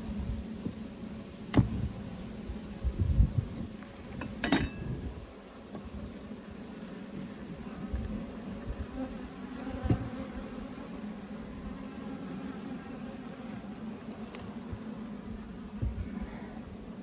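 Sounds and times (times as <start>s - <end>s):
bees buzzing: 5.2s - 17.0s.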